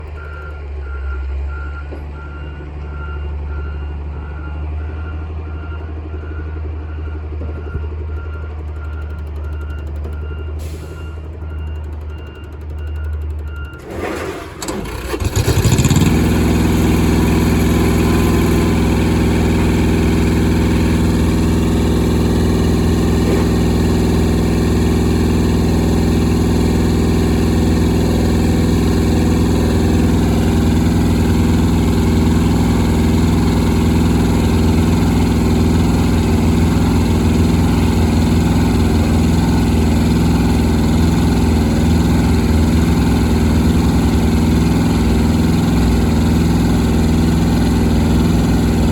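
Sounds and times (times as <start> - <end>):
engine starting and running: 0.0 - 3.8, 7.0 - 48.9.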